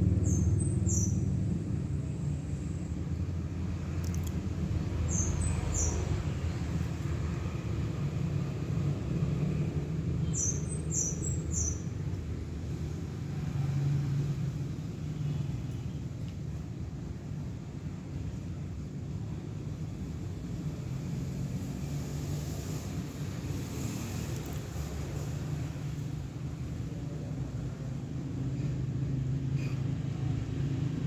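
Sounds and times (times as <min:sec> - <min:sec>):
steady low rumble: 0:00.0 - 0:10.2.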